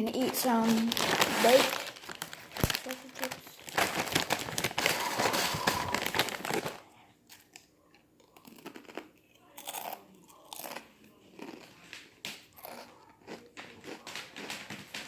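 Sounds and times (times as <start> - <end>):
person chewing crunchy chips: 3.6 - 7.6, 8.2 - 11.9, 12.5 - 14.6.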